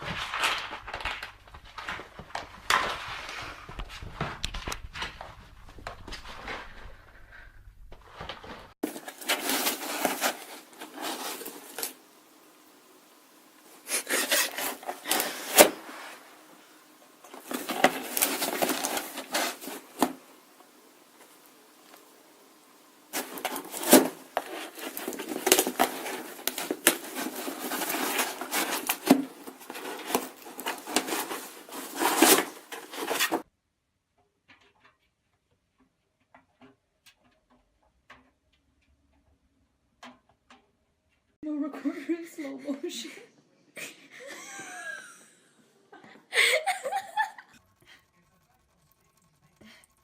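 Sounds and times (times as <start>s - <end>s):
rubbing and scraping: 0.0s - 33.5s.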